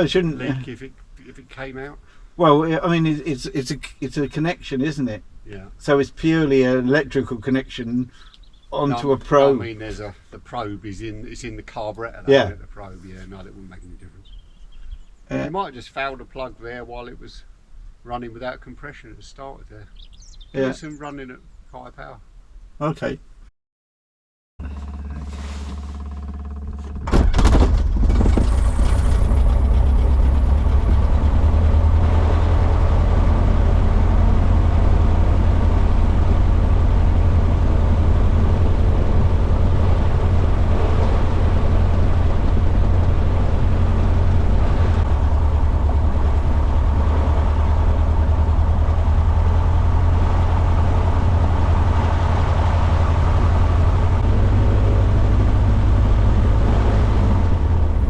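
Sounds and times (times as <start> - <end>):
piston aircraft engine running: 24.6 - 58.0.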